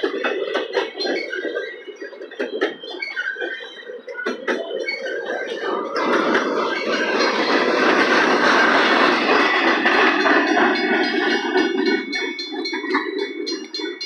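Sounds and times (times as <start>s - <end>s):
train wheels rumbling and clattering: 0.0s - 14.0s
crossing bell ringing: 6.6s - 14.0s.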